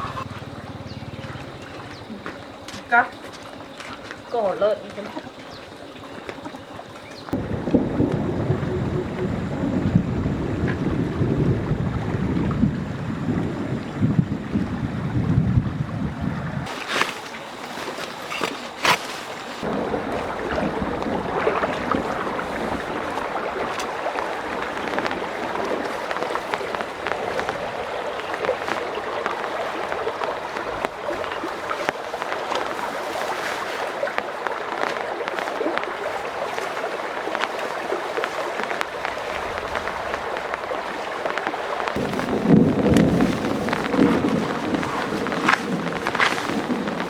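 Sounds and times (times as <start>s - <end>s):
heavy rain falling: 0.0s - 3.5s, 7.3s - 16.8s, 19.4s - 47.0s
low rumble: 7.4s - 16.7s, 42.0s - 47.0s.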